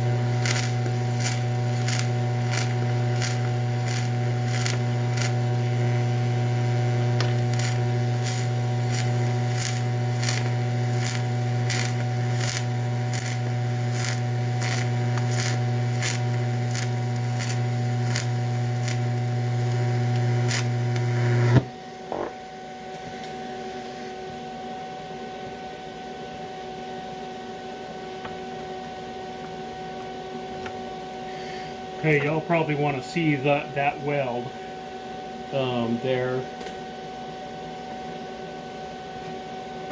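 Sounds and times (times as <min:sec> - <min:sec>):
welding arc buzzing and crackling: 0:00.0 - 0:24.2, 0:30.7 - 0:37.0
steady hum: 0:00.0 - 0:25.6, 0:27.3 - 0:39.9.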